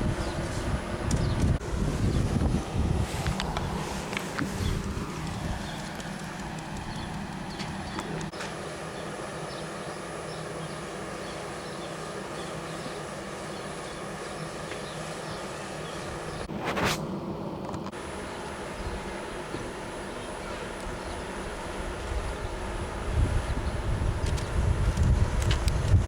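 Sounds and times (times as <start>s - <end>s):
car road and engine noise: 0.0s - 8.4s.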